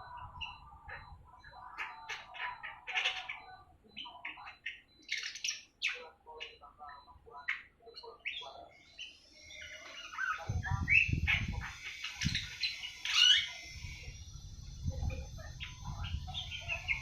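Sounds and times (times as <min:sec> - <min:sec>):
young bird twittering: 0:00.0 - 0:17.0.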